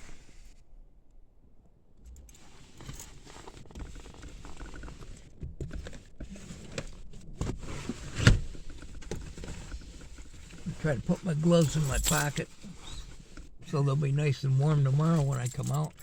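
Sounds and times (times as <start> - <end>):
clothing rustling: 11.5 - 13.0.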